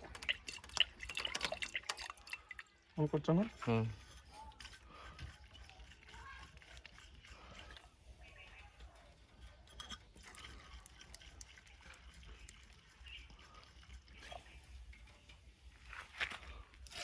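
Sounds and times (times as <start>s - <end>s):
small clicks and ticks: 9.7s - 15.4s.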